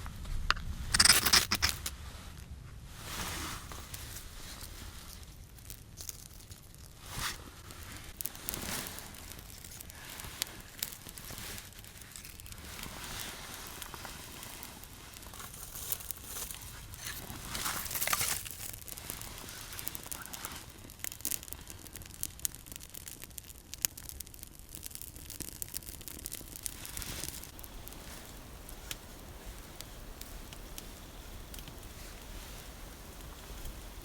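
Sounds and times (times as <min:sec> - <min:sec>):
sharp clicks: 0:00.5 - 0:01.9
material rustling and crinkling: 0:00.6 - 0:23.0, 0:25.0 - 0:34.0.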